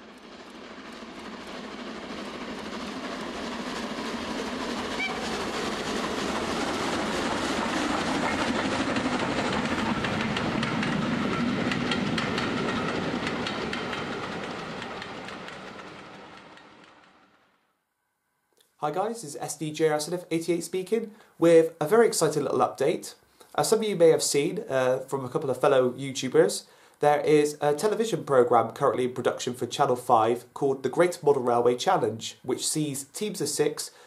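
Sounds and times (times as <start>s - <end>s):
train wheels clicking over rail joints: 0.1s - 17.2s.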